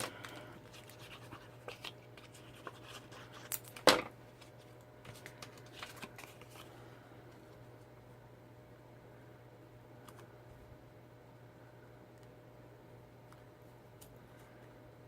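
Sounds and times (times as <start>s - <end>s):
cardstock rustling and scraping: 0.0s - 6.8s.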